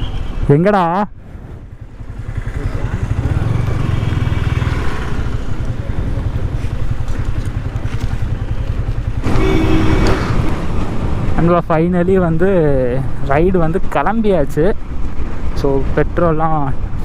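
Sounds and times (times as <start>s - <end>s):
motorcycle engine running: 1.2s - 13.7s.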